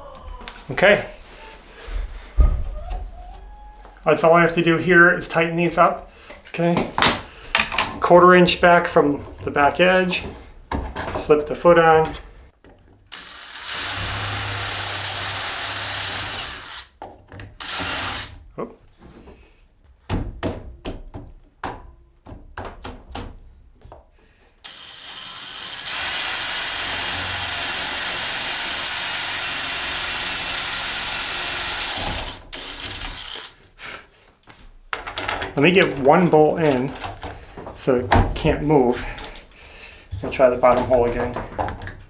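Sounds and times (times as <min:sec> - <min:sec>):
clicks and knocks: 0:06.3 - 0:08.2, 0:09.2 - 0:11.5, 0:34.9 - 0:42.0
power drill drilling: 0:13.1 - 0:16.9, 0:17.6 - 0:18.4, 0:24.6 - 0:33.6.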